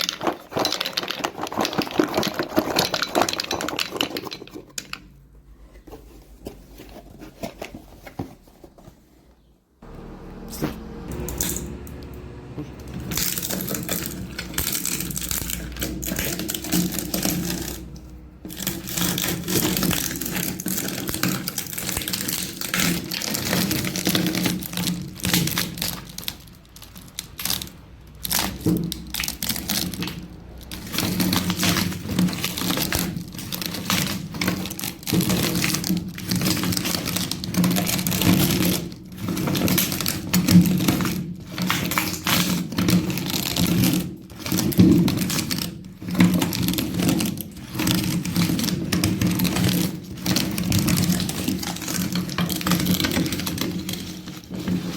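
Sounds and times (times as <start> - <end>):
walnuts cracking and rattling: 0.0 - 5.3, 11.0 - 54.9.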